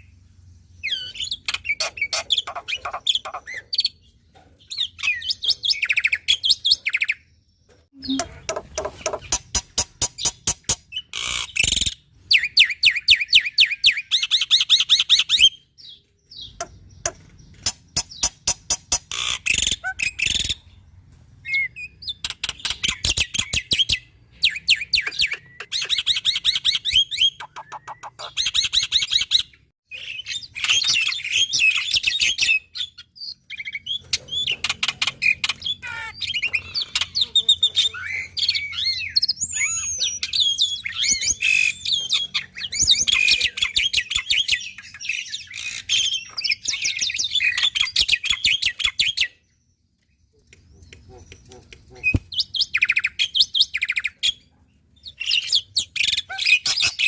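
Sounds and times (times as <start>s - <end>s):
starling singing: 0.8s - 7.3s, 8.0s - 20.8s.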